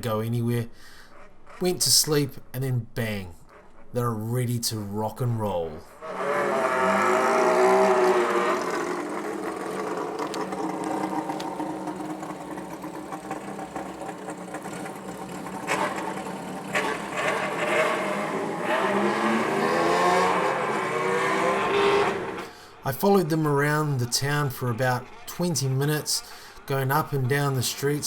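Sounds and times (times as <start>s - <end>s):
motorcycle engines revving: 5.9s - 22.6s.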